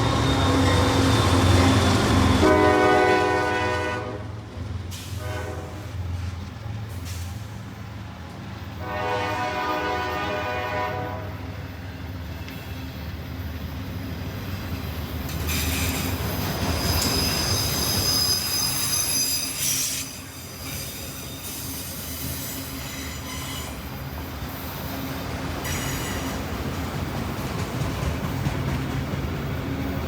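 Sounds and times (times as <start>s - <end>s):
train wheels squealing: 0.0s - 2.5s, 11.6s - 26.6s
freight train rumbling past: 0.0s - 30.0s.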